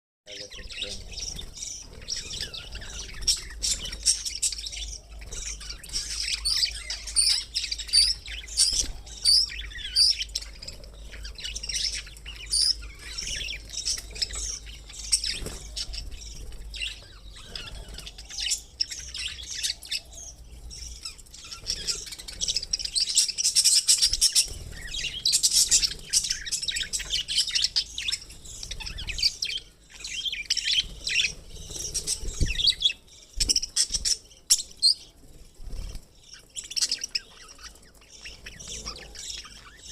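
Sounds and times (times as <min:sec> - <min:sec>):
budgerigars chirping and chattering: 0:00.3 - 0:39.9.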